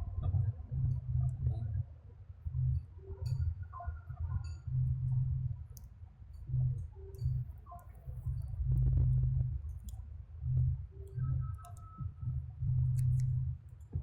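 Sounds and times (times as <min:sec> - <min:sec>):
small clicks and taps: 0:11.0 - 0:12.0, 0:12.9 - 0:14.0.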